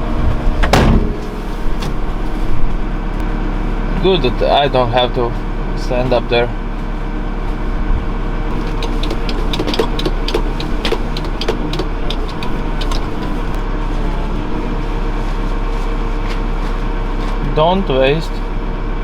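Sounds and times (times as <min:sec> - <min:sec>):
diesel engine running: 0:00.0 - 0:19.0
rapid clicks and knocks: 0:08.5 - 0:13.6.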